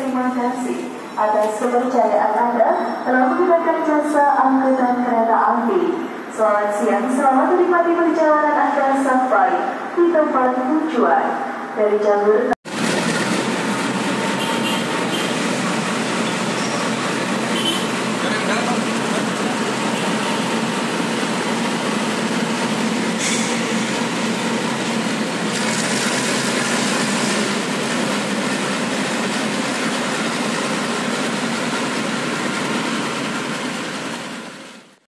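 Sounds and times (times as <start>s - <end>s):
train rumbling along track: 12.7s - 35.0s
train brake hiss: 23.1s - 24.1s.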